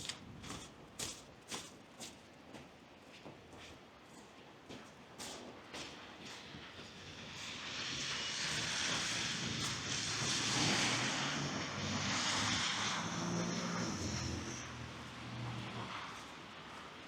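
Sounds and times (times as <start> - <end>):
vehicle engine hum: 8.7 - 17.0.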